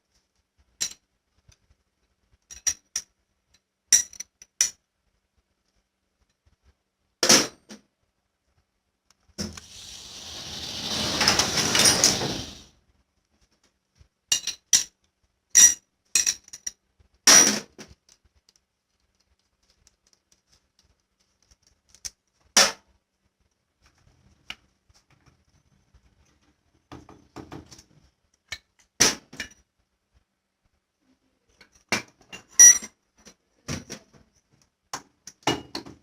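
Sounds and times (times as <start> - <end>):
metal tools clinking: 9.6 - 12.6.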